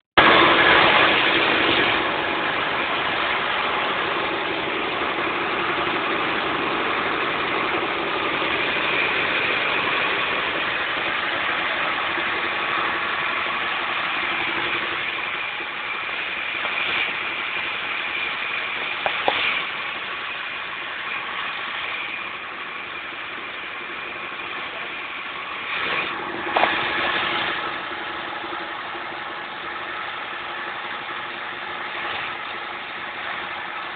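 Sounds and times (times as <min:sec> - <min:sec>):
generator engine running: 0:00.2 - 0:33.9.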